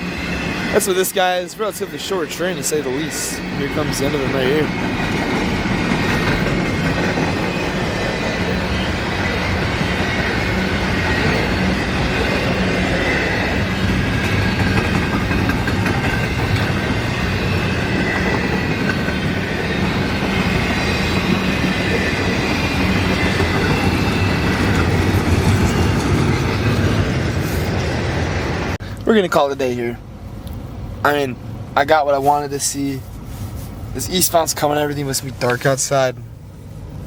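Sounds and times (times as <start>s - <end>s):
high wheel squeal: 0.0s - 28.8s
train wheels rumbling on rail: 0.0s - 37.0s.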